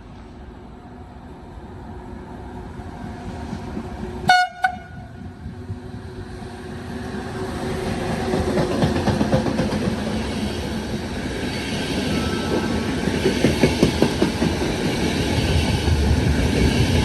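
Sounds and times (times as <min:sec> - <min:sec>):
train rumble: 0:00.0 - 0:17.0
train horn blast: 0:04.3 - 0:05.2.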